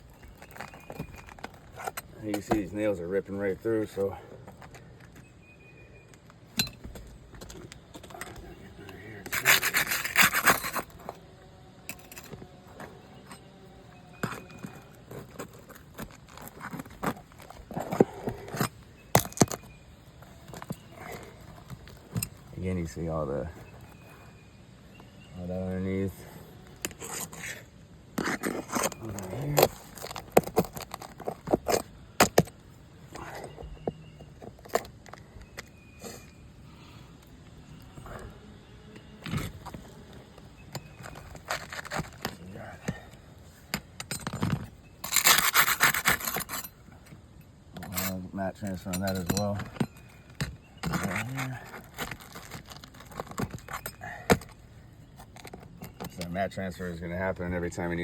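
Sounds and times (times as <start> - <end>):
tool scraping under roof shingle: 0.0 - 5.6, 6.2 - 38.4, 39.0 - 58.0
shingles pried up clicking: 39.0 - 56.4.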